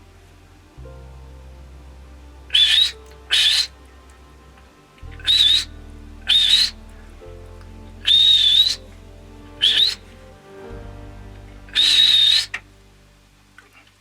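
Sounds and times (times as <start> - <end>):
background music with low chords: 0.0 - 14.0
sharp breathy whistles: 2.6 - 3.7, 5.2 - 5.7, 6.3 - 6.8, 8.0 - 8.8, 9.6 - 10.0, 11.8 - 12.5.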